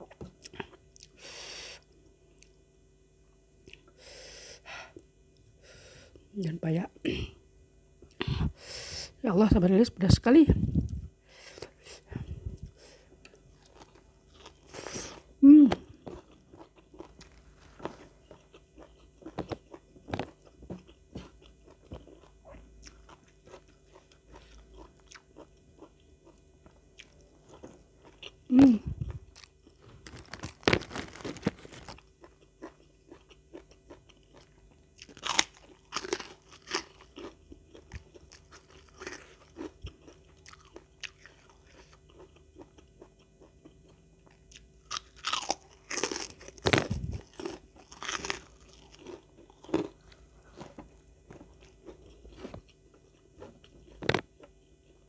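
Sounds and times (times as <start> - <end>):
chewing: 16.0 - 28.4, 29.0 - 54.6
crisp crunching bites: 29.3 - 32.4, 33.1 - 42.7, 44.9 - 52.8.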